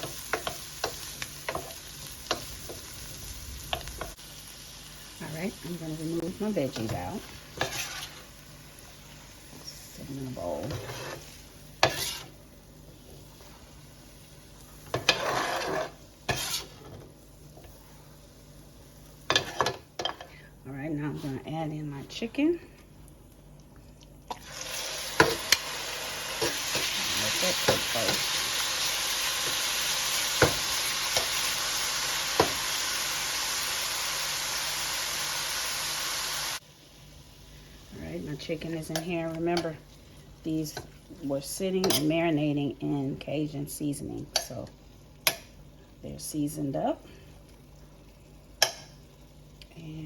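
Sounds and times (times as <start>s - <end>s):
low sizzle from pan: 0.0s - 50.0s
utensil scraping frying pan: 6.4s - 8.4s, 9.7s - 12.4s, 14.8s - 18.0s, 19.2s - 20.2s.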